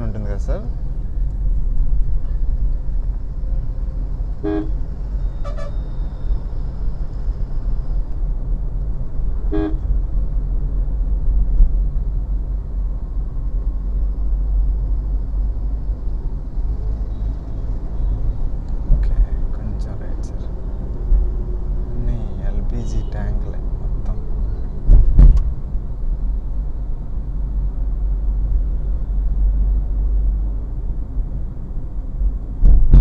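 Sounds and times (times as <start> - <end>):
road and engine rumble: 0.0 - 33.0
car horn toots: 4.4 - 4.8, 9.5 - 9.9.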